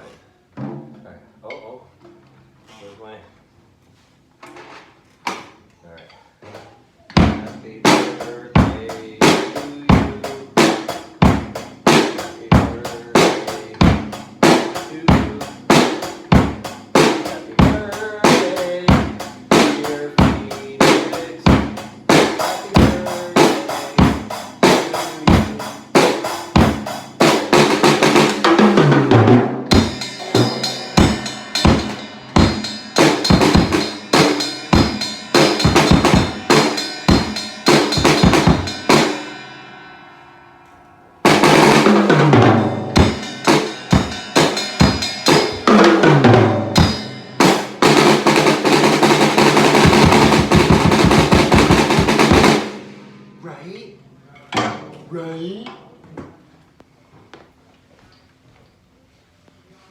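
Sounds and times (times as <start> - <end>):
drum kit beat: 6.6 - 40.3, 41.2 - 54.2.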